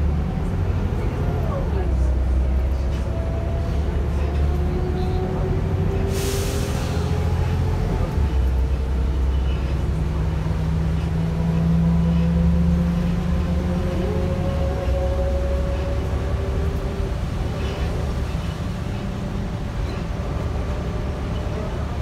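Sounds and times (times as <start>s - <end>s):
bus diesel engine rumble: 0.0s - 22.0s
air brake hiss: 6.1s - 7.0s.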